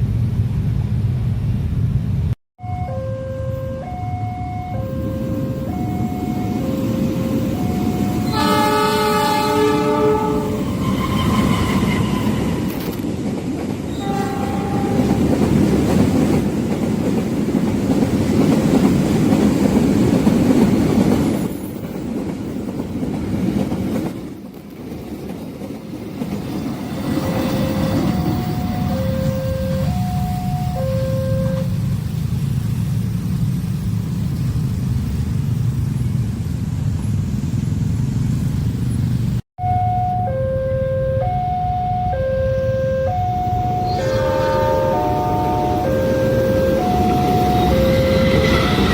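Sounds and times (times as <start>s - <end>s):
two-note crossing warning signal: 2.6s - 10.6s, 27.6s - 31.7s, 39.6s - 48.9s
train horn: 2.6s - 12.7s, 13.9s - 15.5s, 27.3s - 31.8s, 39.6s - 48.9s
train cars rumbling and clattering: 4.9s - 39.4s, 43.1s - 48.9s.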